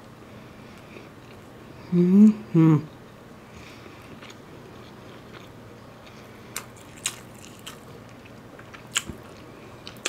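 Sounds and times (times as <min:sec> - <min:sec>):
wet chewing clicks: 0:06.6 - 0:10.0.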